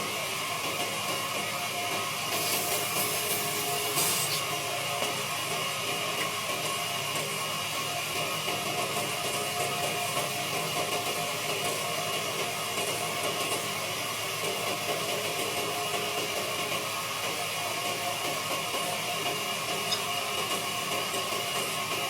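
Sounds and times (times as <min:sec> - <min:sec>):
wood lathe running: 0:01.3 - 0:07.4.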